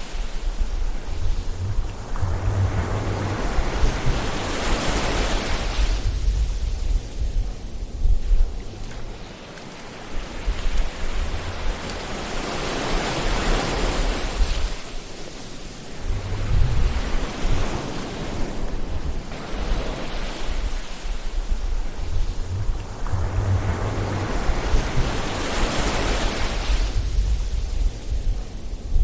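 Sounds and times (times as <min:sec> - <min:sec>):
ocean waves surging: 0:00.0 - 0:29.0
low rumble: 0:00.5 - 0:09.0, 0:16.0 - 0:17.2, 0:21.3 - 0:29.0.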